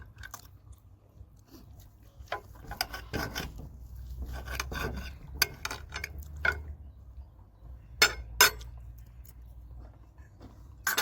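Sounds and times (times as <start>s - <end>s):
tableware scraping: 2.4s - 6.7s, 10.8s - 11.0s
tableware clicking and knocking: 4.3s - 6.7s, 8.0s - 8.8s.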